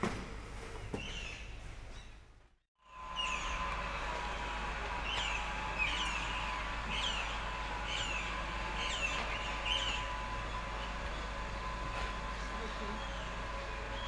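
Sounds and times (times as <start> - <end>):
low background noise: 0.0 - 14.0
bird chirping: 3.0 - 3.7, 5.0 - 14.0.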